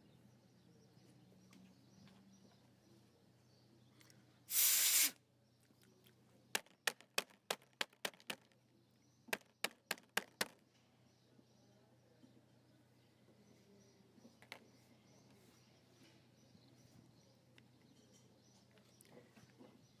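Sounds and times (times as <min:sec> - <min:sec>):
aerosol spray hiss: 0:04.5 - 0:05.2.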